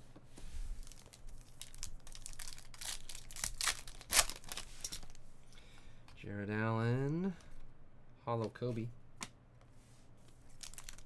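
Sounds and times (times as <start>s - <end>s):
wrapper tearing and crinkling: 0.8s - 5.2s, 10.5s - 11.0s.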